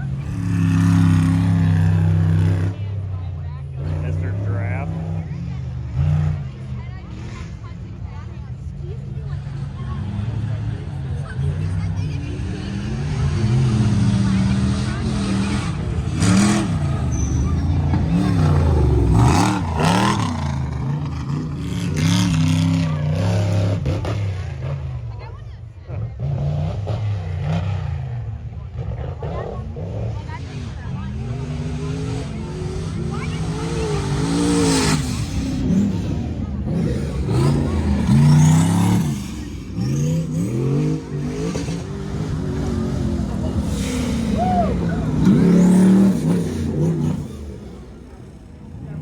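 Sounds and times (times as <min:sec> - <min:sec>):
truck engine revving: 0:00.0 - 0:49.0.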